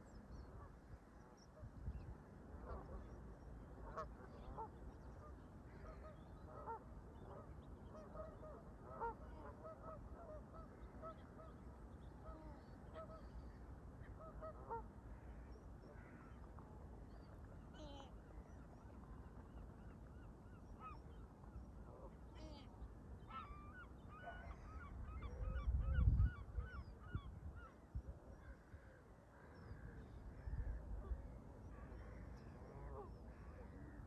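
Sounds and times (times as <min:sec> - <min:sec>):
distant geese honking: 0:02.6 - 0:13.3, 0:14.0 - 0:16.3.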